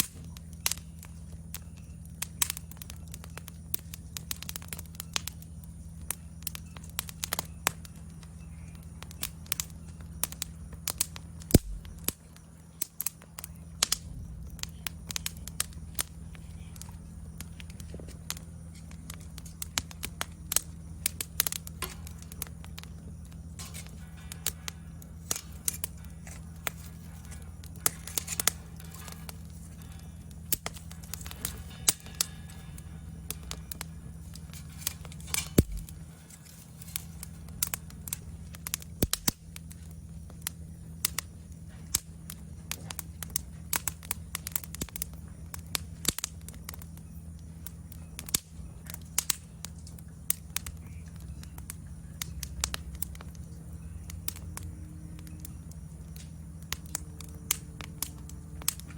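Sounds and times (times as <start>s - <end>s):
insects trilling: 0.0s - 58.9s
steady low hum: 0.0s - 58.9s
wood fire crackling and popping: 0.0s - 58.9s.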